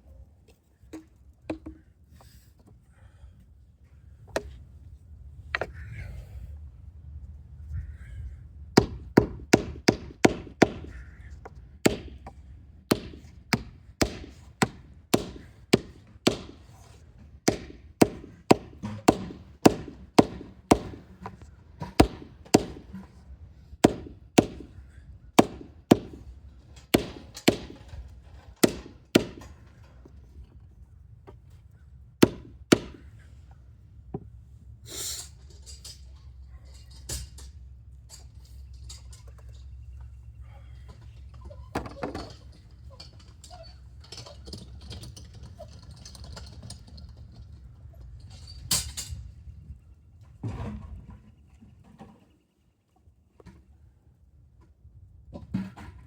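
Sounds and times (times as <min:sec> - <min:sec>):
hand tool striking wood: 0:08.8 - 0:10.9, 0:11.8 - 0:16.8, 0:17.4 - 0:23.1, 0:23.8 - 0:24.7, 0:25.4 - 0:26.2, 0:26.9 - 0:27.9, 0:28.6 - 0:29.6, 0:32.2 - 0:33.0.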